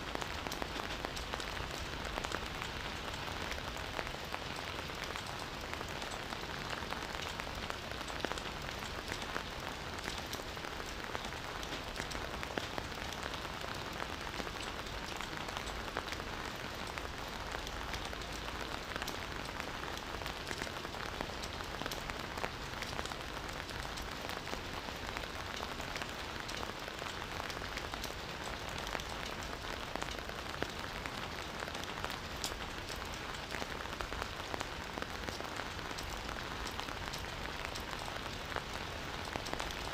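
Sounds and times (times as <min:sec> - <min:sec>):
rain pattering on leaves: 0:00.0 - 0:39.9.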